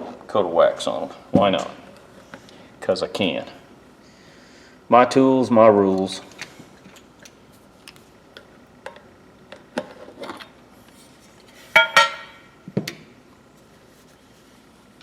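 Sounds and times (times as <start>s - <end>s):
metallic clatter with ring: 11.8s - 12.4s.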